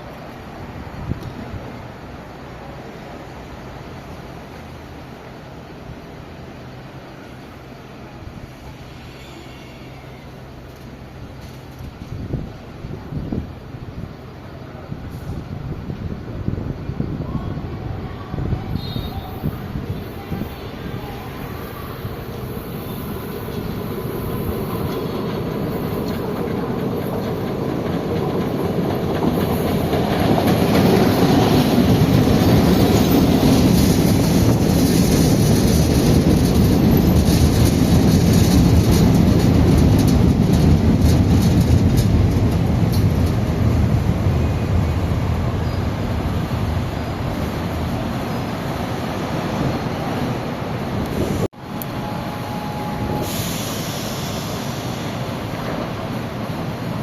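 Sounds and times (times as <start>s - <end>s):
electric train rumble: 0.0s - 57.0s
wheels clicking over rails: 23.4s - 44.8s.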